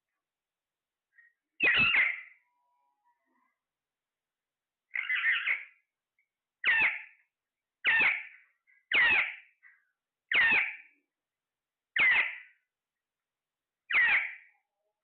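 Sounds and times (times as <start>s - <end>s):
parrot calling: 1.6s - 2.4s, 4.9s - 5.8s, 6.6s - 7.2s, 7.8s - 9.4s, 10.3s - 10.9s, 12.0s - 12.5s, 13.9s - 14.5s.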